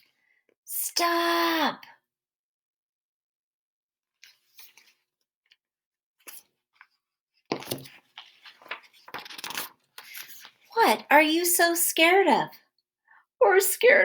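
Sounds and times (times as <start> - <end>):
rustling and handling noises: 6.2 - 11.1.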